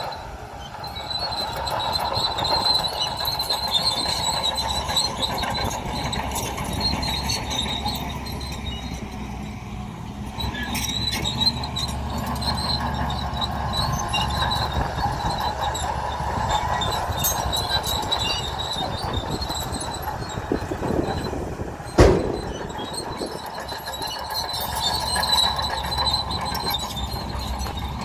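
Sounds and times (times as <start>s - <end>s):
bulldozer diesel rumble: 0.0s - 28.0s
steel tracks squealing and clinking: 0.0s - 28.0s
loud metal clank: 21.9s - 24.9s.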